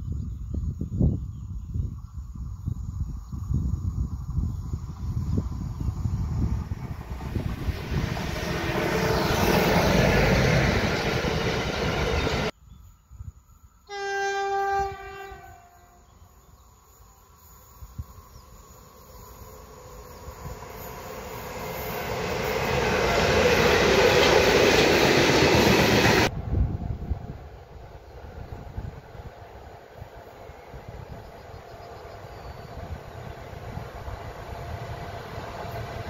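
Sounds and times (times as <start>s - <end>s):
freight train rumbling past: 3.8s - 12.6s, 13.9s - 36.0s
distant locomotive horn: 13.9s - 16.3s.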